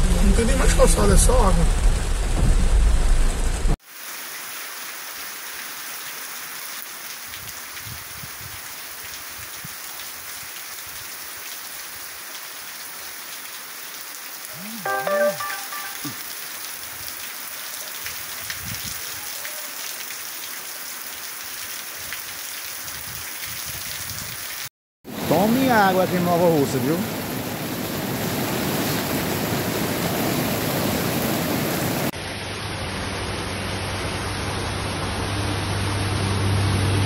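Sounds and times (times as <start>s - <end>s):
heavy rain: 0.0s - 37.0s
short voice-like call: 14.5s - 16.2s.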